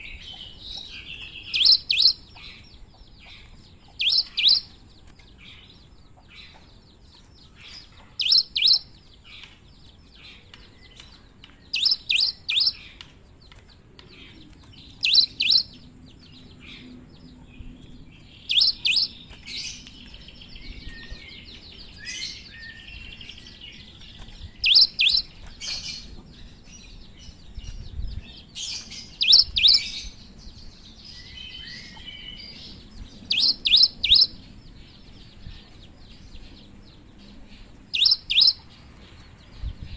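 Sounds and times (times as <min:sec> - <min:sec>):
bird singing sharp high notes: 0:38.0 - 0:38.6.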